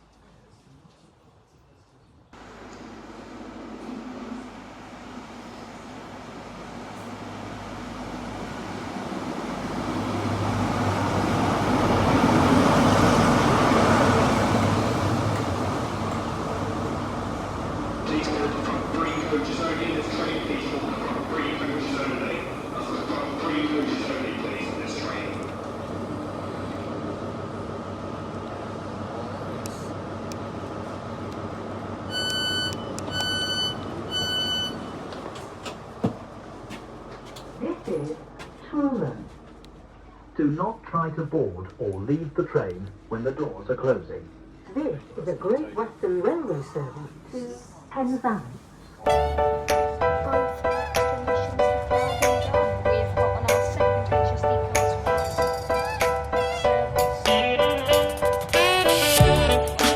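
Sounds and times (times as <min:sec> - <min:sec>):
diesel train engines humming: 0:02.4 - 0:59.9
electronic door warning beeps: 0:32.1 - 0:35.0.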